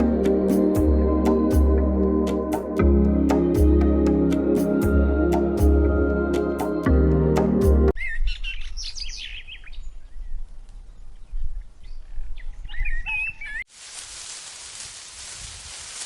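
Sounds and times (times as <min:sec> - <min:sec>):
burst of music: 0:00.0 - 0:07.9
birds chirping and whistling: 0:11.8 - 0:13.6
steady hiss: 0:13.7 - 0:16.0.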